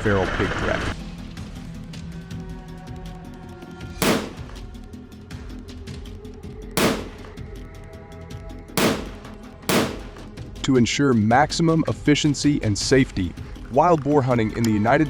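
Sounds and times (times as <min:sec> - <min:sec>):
gunshots with echo: 0:04.0 - 0:04.6, 0:06.8 - 0:07.4, 0:08.8 - 0:10.4.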